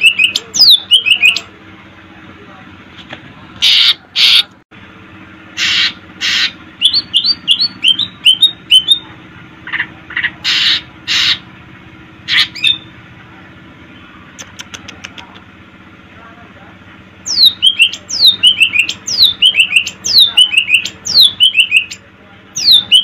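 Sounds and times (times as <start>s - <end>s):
bird harsh rasping calls: 3.6s - 4.5s, 5.5s - 11.5s, 12.2s - 12.9s, 17.2s - 23.0s
bird whistled notes: 5.6s - 9.0s.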